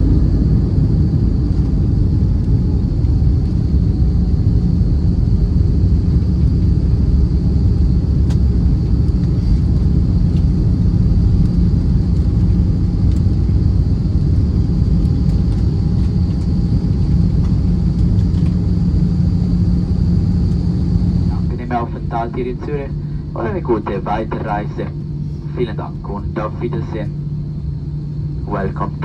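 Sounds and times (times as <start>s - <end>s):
aircraft engines and airflow rumble: 0.0s - 29.0s
faint high whine: 17.8s - 29.0s.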